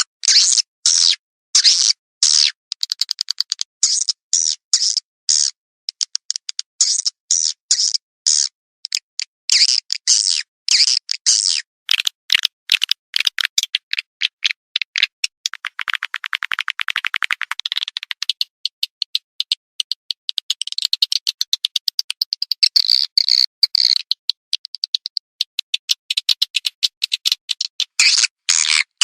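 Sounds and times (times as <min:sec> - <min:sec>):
swiftlet chirps and twitters: 0:06.8 - 0:29.0
fast run of clicks: 0:11.9 - 0:28.3.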